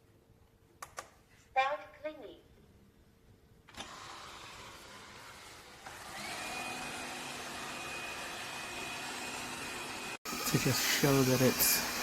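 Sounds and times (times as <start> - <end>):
robot vacuum motor whining: 3.7 - 12.0.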